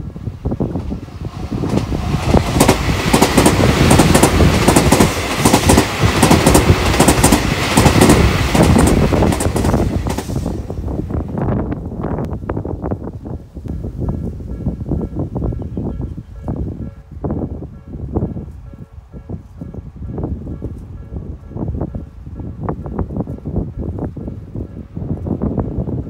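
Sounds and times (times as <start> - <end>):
train wheels rushing on rail: 0.0 - 26.0
wheels clacking over rail joints: 1.6 - 10.4.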